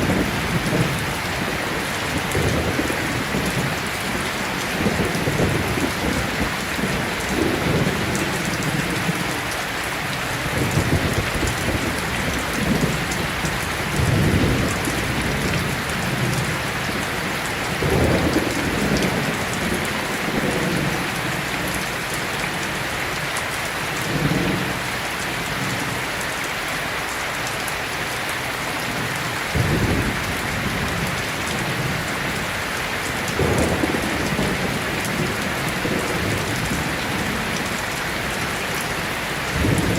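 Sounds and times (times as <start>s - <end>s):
thunder rolling: 0.0s - 9.2s, 10.5s - 17.0s, 29.5s - 39.9s
heavy rain falling: 0.0s - 39.9s.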